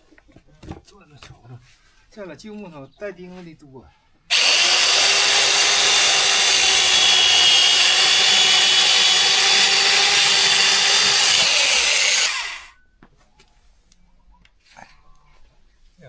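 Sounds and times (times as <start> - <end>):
power saw cutting wood: 4.3 - 12.7.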